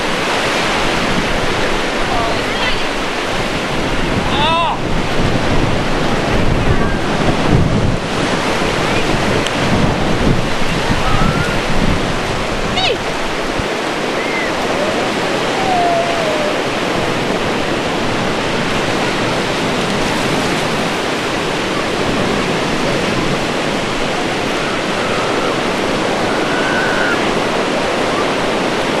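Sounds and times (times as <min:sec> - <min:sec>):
ocean waves breaking: 0:00.0 - 0:29.0
faint high-pitched cries: 0:14.2 - 0:16.6.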